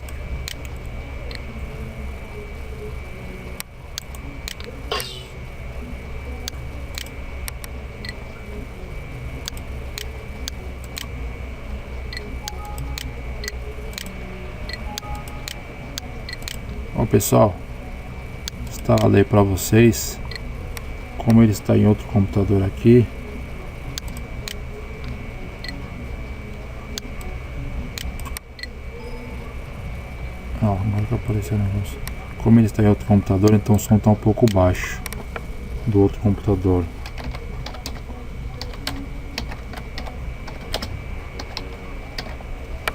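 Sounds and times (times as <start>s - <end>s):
steady low hum: 0.0s - 42.9s
keyboard keys clicking: 37.0s - 38.0s, 38.6s - 42.9s.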